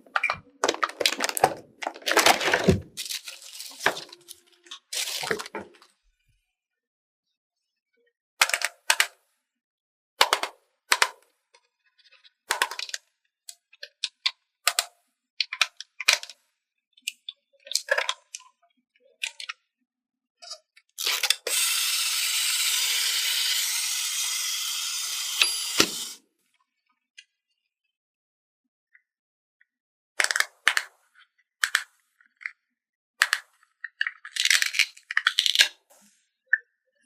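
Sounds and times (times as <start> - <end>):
plastic toy pieces clicking: 30.2 - 30.9, 31.6 - 32.6, 33.2 - 35.8.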